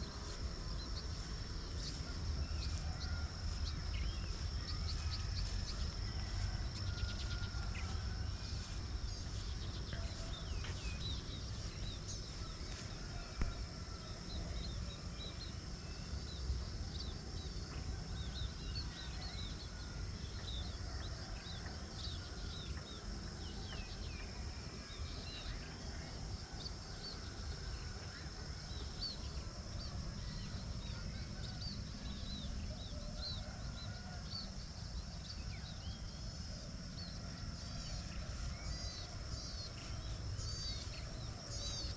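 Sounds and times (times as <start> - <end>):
small birds chirping: 0.0 - 13.6, 36.9 - 41.9
steady high-pitched whine: 0.0 - 41.9.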